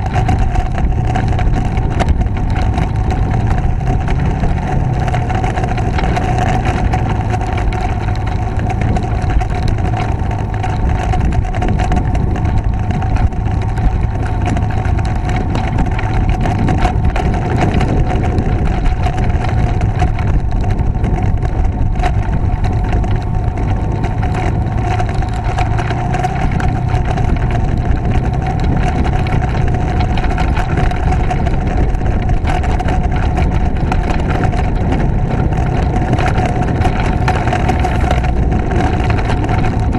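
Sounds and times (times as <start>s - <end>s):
motorcycle engine running: 0.0s - 39.9s
wind rumbling on microphone: 0.0s - 39.9s.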